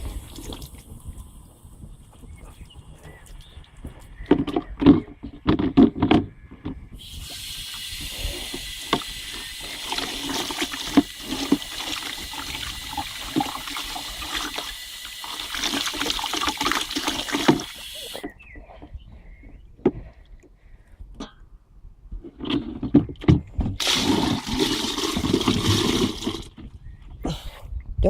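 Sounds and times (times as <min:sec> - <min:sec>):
sharp knocks and clatters: 0:04.2 - 0:06.8
water running into a sink: 0:07.0 - 0:18.2, 0:23.8 - 0:26.5.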